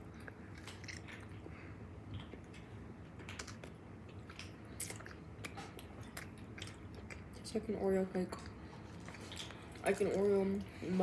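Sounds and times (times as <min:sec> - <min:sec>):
people chewing cookie: 0:00.0 - 0:07.6, 0:08.2 - 0:11.0
faint room hum: 0:00.0 - 0:11.0.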